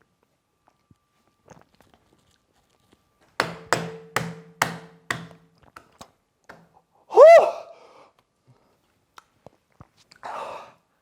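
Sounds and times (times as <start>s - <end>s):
hard knocks on a surface: 3.4s - 5.5s.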